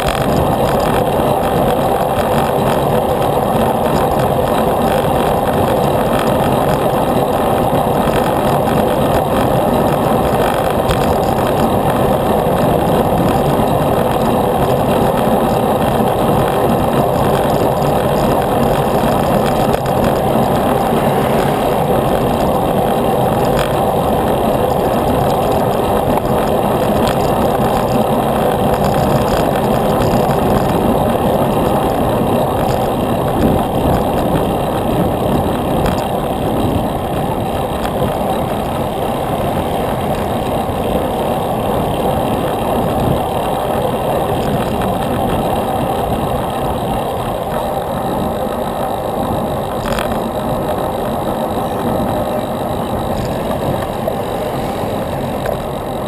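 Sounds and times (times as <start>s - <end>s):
wind rushing on microphone: 0.0s - 56.0s.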